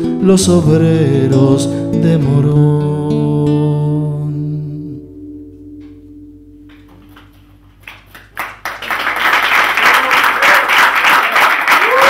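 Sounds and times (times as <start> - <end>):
guitar chord ringing: 0.0 - 7.5
audience applause: 7.2 - 12.0.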